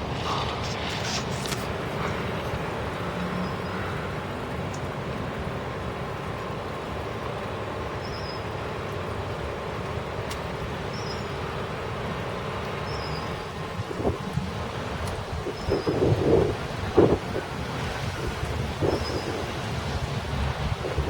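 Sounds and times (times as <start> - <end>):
thunder crackling: 0.0 - 4.6, 13.8 - 21.0
heavy rain: 0.0 - 21.0
wind: 0.0 - 21.0.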